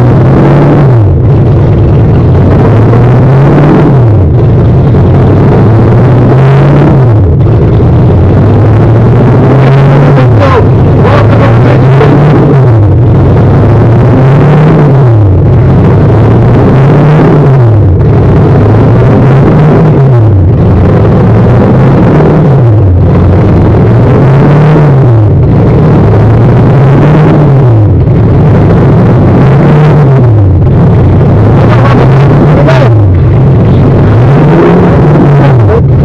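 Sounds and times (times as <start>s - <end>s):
car engine revving: 0.0s - 36.0s.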